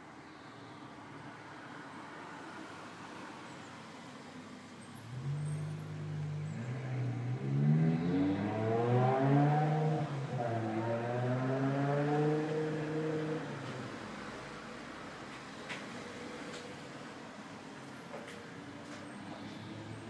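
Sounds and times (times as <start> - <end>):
car engine revving: 5.0 - 14.3.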